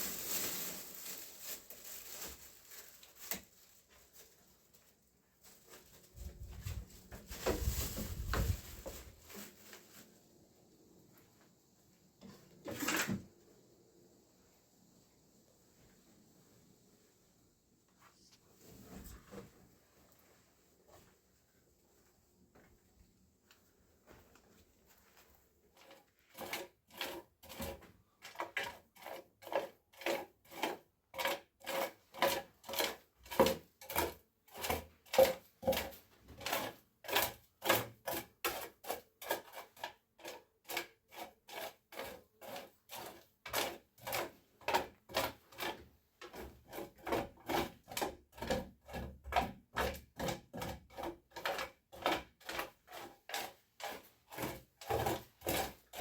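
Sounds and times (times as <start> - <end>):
hand tool rasping: 25.8 - 27.8, 28.6 - 56.0.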